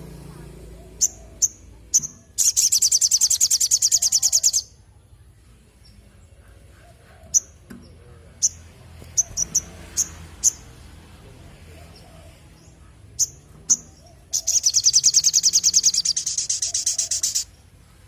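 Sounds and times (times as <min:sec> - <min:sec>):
bird chips and trill: 0:01.0 - 0:04.7, 0:13.2 - 0:17.5.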